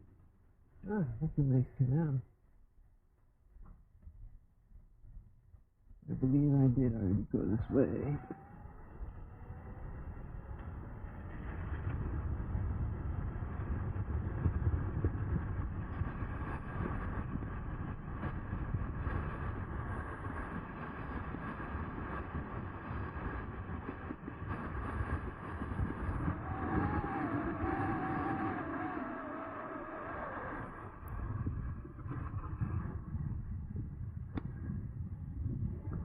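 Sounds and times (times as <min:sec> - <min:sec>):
wind rumble: 0:00.0 - 0:36.0
electric motor whine: 0:07.4 - 0:15.0, 0:15.6 - 0:33.2.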